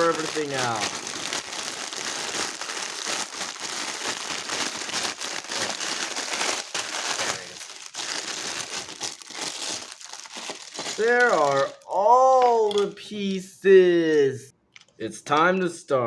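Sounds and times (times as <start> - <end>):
plastic bags crinkling: 0.0 - 12.8.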